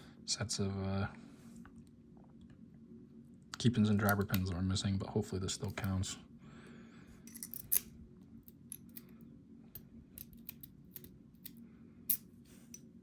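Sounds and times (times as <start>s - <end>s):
metallic clicks and scrapes of lock: 7.3s - 7.9s, 8.5s - 9.1s, 10.2s - 12.9s.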